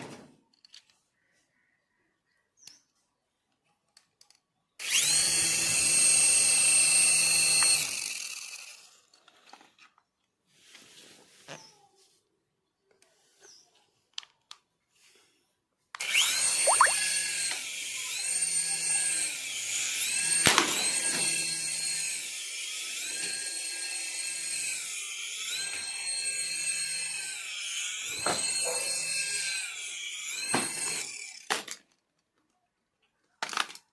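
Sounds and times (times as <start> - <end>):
toy car electric motor whining: 4.0 - 10.0, 14.2 - 32.0.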